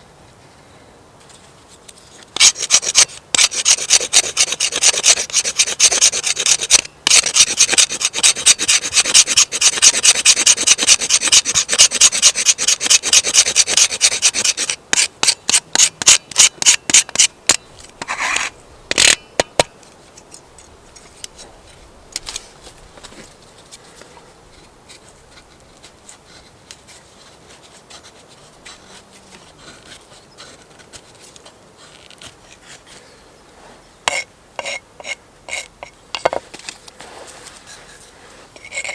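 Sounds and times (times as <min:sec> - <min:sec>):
blade scraping wood: 0:02.0 - 0:19.2, 0:24.5 - 0:33.1, 0:33.7 - 0:38.9.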